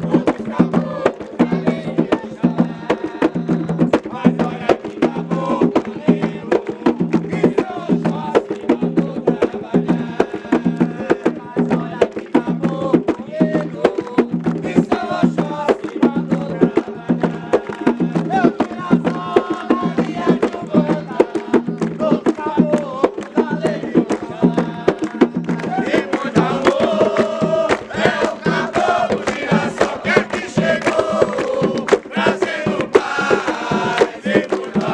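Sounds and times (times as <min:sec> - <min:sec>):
hand drums beaten fast: 0:00.0 - 0:34.9
voices singing: 0:00.0 - 0:34.9.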